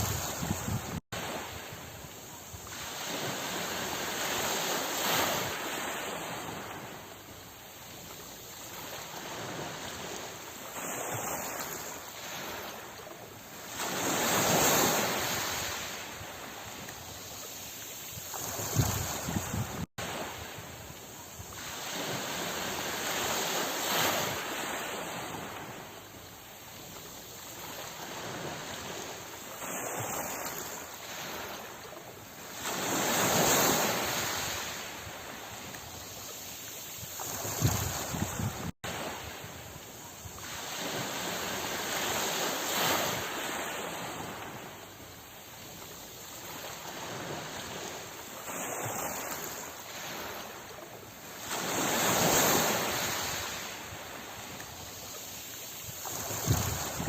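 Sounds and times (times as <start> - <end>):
ocean waves washing: 0.0 - 57.0.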